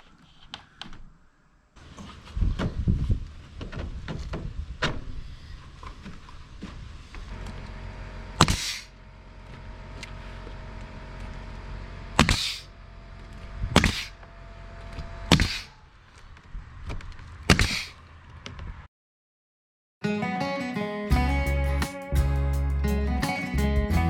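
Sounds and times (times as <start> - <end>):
nail gun firing: 8.4 - 8.9, 12.2 - 12.7, 13.8 - 14.2, 15.3 - 15.7, 17.5 - 17.9.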